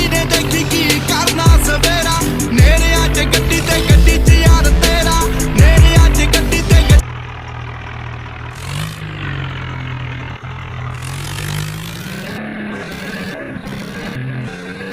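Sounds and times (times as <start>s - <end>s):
hip hop music with heavy bass: 0.0s - 7.0s
tractor engine idling and revving: 0.0s - 14.9s.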